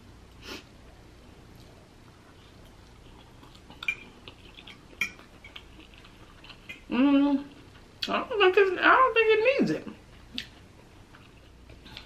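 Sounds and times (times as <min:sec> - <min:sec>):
person chewing noodles: 0:01.5 - 0:08.1, 0:10.1 - 0:12.0
fork clinking on plate: 0:03.8 - 0:04.1, 0:05.0 - 0:05.6.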